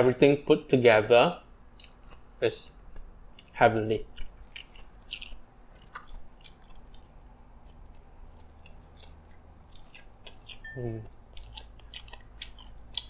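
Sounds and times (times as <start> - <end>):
wet mouth clicks: 1.7 - 2.3, 7.8 - 13.0
chewing crunchy salad: 1.7 - 13.0.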